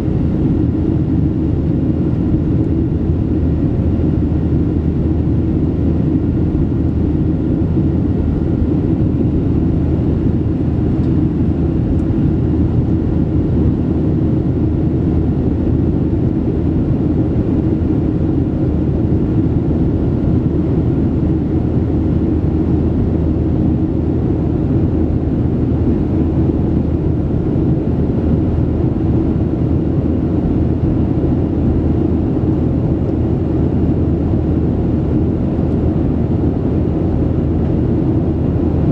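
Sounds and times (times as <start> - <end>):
aircraft cabin engine drone: 0.0 - 38.9.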